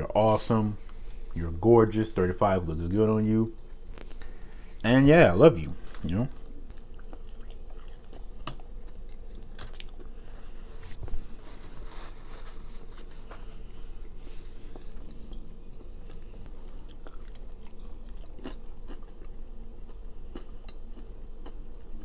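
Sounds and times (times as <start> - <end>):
person chewing food: 6.4 - 22.0.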